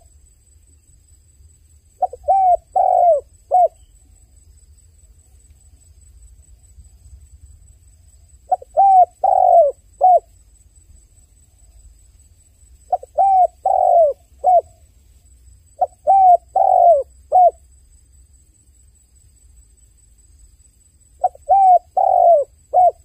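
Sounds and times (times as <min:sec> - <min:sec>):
dove cooing: 0:02.0 - 0:03.8, 0:08.5 - 0:10.3, 0:12.9 - 0:14.8, 0:15.8 - 0:17.6, 0:21.2 - 0:23.0.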